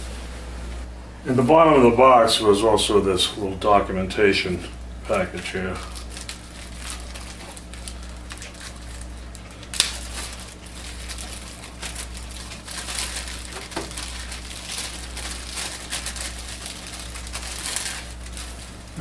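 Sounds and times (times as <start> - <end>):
wrapping crinkling and rustling: 4.2 - 19.0.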